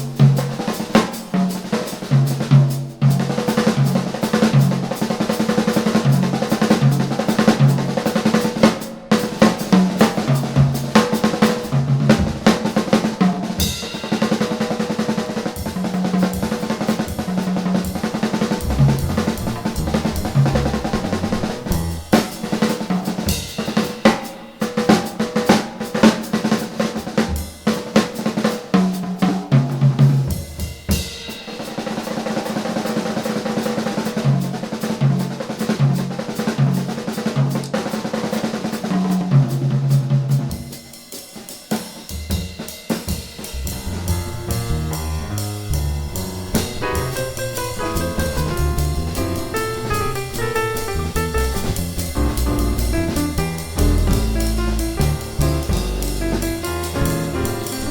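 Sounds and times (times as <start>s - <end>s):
piano: 0.0s - 35.3s, 43.1s - 57.9s
jazz drum solo: 0.0s - 57.9s
double bass: 18.2s - 22.4s, 43.5s - 57.9s.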